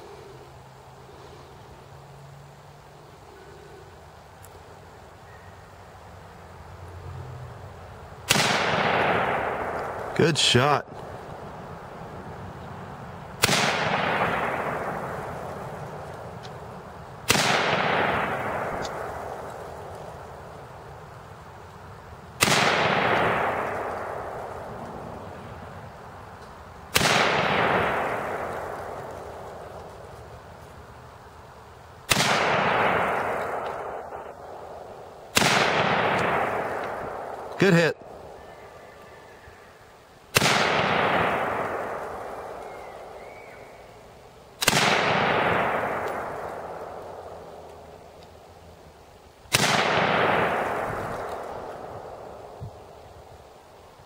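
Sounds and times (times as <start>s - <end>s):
rifle shots echoing: 8.2s - 10.8s, 13.4s - 16.4s, 17.2s - 20.5s, 22.4s - 25.2s, 26.9s - 30.1s, 32.1s - 38.4s, 40.3s - 43.8s, 44.6s - 48.0s, 49.5s - 53.0s.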